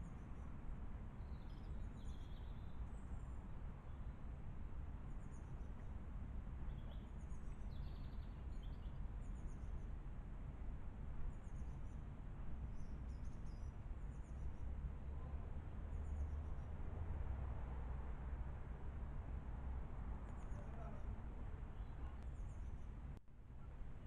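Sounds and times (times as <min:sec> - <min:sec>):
low background rumble: 0:00.0 - 0:24.0
small birds chirping: 0:01.2 - 0:04.1, 0:06.6 - 0:09.9, 0:11.2 - 0:12.0, 0:12.6 - 0:16.7, 0:20.2 - 0:23.1.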